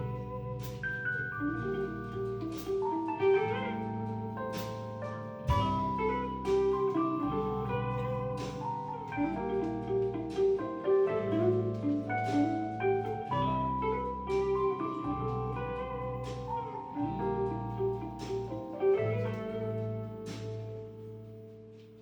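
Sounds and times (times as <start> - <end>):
bass line: 0.0 - 21.5
keyboard chords: 0.0 - 22.0
drum hits: 5.5 - 6.0.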